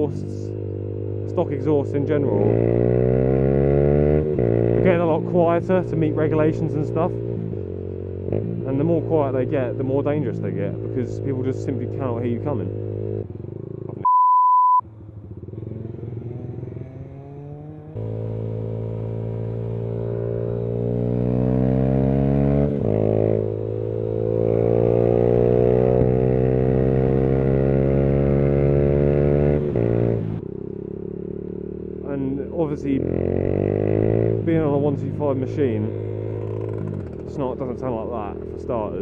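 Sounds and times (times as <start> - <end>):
motorcycle engine accelerating: 0.0 - 14.0, 14.8 - 39.0
short beep: 14.0 - 14.9.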